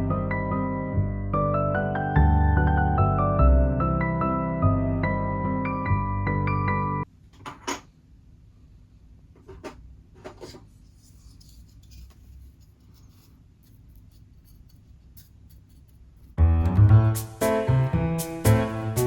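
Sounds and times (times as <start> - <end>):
background music: 0.0 - 7.0, 16.4 - 19.0
faint rubbing: 10.2 - 16.4.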